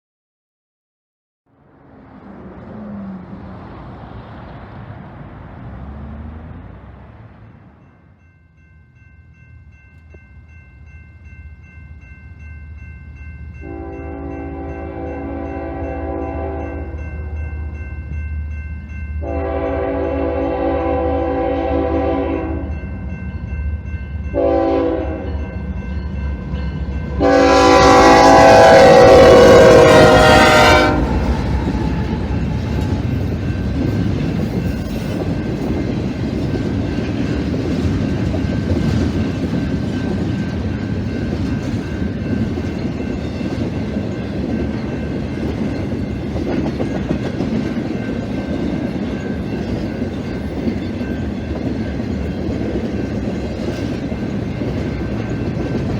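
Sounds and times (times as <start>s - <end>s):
train rumbling and clacking by: 1.6s - 55.9s
train horn blasts: 13.6s - 17.0s, 19.2s - 22.8s, 24.3s - 25.6s, 27.1s - 32.4s.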